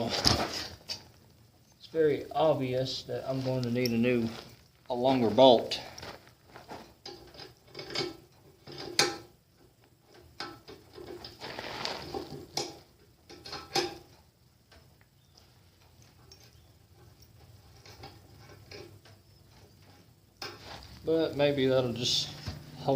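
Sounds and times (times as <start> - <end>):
metallic clicks and knocks: 6.8 - 9.3.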